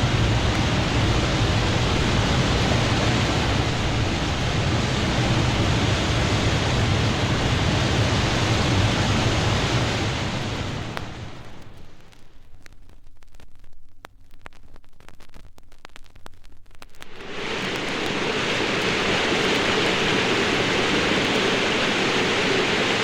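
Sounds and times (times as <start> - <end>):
deep rushing noise: 0.0 - 11.6, 17.0 - 23.0.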